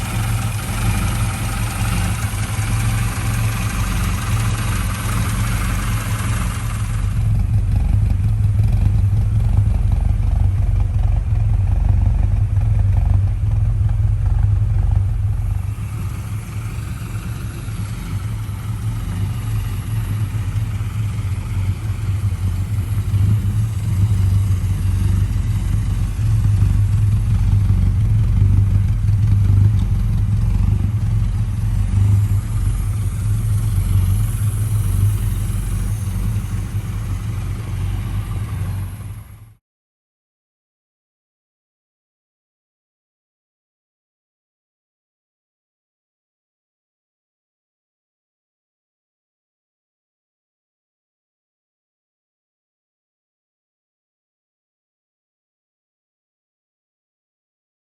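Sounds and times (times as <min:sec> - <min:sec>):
hiss and clatter: 0:00.0 - 0:09.0, 0:15.4 - 0:39.6
car engine idling: 0:00.0 - 0:39.6.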